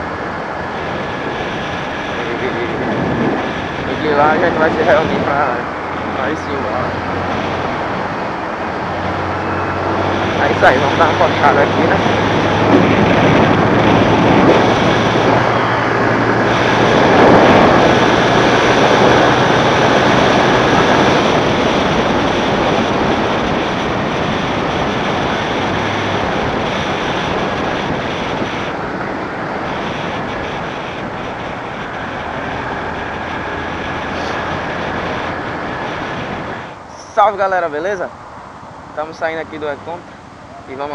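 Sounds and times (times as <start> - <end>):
motorcycle engine drone: 0.0 - 40.9
wind rushing over microphone: 0.0 - 40.9.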